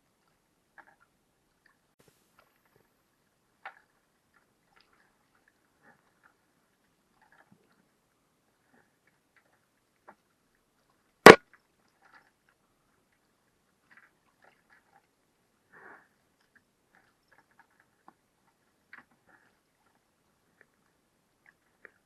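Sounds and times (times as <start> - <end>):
faint ticks and clicks: 16.4 - 22.0.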